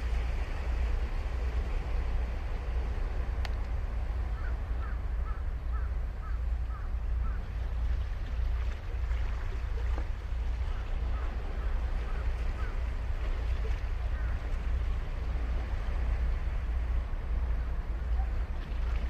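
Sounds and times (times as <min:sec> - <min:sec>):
ocean surf on beach: 0:00.0 - 0:19.0.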